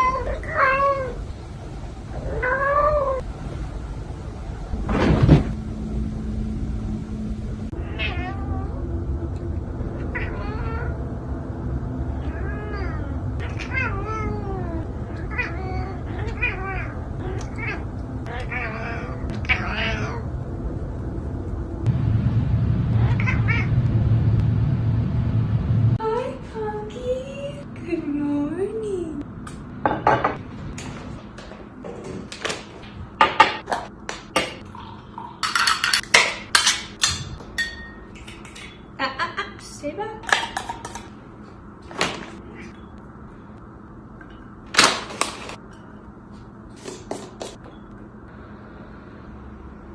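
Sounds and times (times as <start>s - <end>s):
steady low hum: 0.0s - 49.9s
cat meowing: 7.8s - 8.8s, 10.0s - 11.0s, 12.2s - 20.3s
dishes and cutlery clattering: 35.2s - 38.9s, 40.2s - 41.1s.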